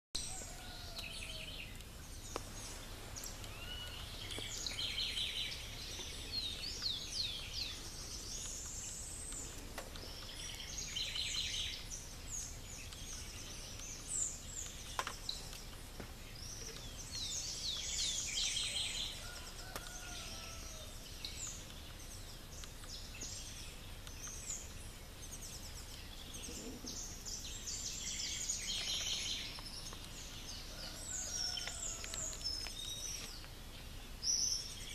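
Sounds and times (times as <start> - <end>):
birds singing: 0.2 - 34.9.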